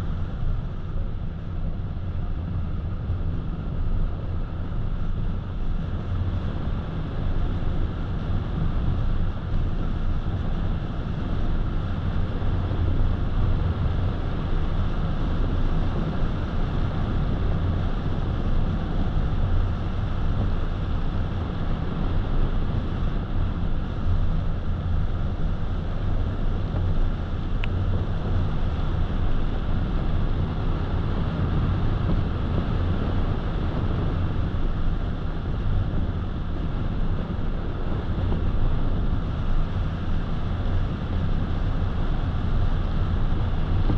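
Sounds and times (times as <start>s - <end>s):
wind noise: 0.0s - 43.9s.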